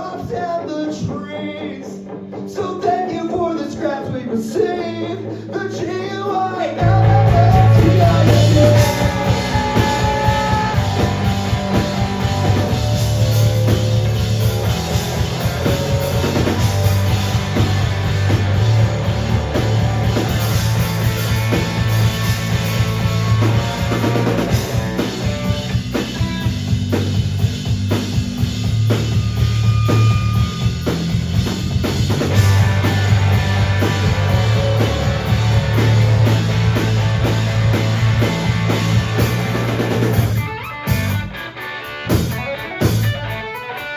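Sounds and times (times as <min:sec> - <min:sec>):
bass guitar: 0:00.0 - 0:43.9
electric guitar: 0:00.0 - 0:43.9
drum kit: 0:06.7 - 0:43.9.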